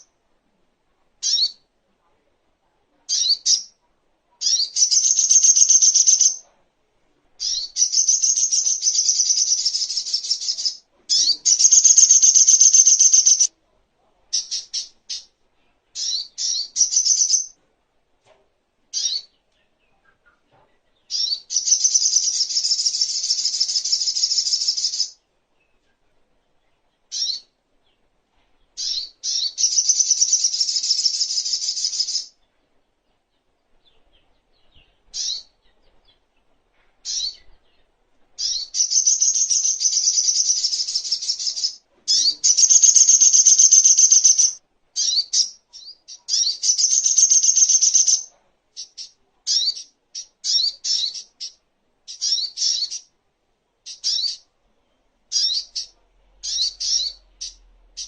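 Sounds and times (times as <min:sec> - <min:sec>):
bird sharp chirps: 0:04.4 - 0:06.4, 0:07.4 - 0:13.5, 0:37.0 - 0:53.1, 0:53.9 - 0:54.4, 0:55.3 - 0:58.0
bird high rapid trills: 0:42.4 - 0:44.6.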